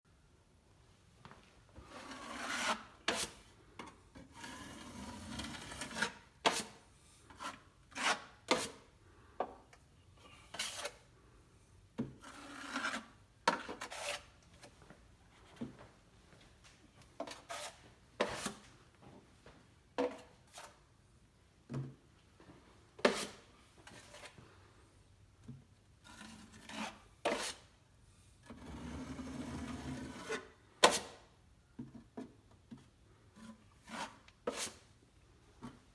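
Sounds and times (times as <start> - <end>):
drywall knife scraping compound: 1.8 - 11.2, 11.9 - 14.7, 17.2 - 18.7, 20.0 - 21.0, 23.0 - 24.4, 25.4 - 27.8, 28.4 - 35.9.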